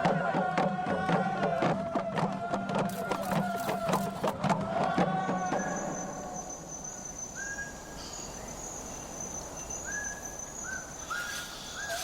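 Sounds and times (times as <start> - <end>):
high-pitched insect trill: 5.6 - 12.0.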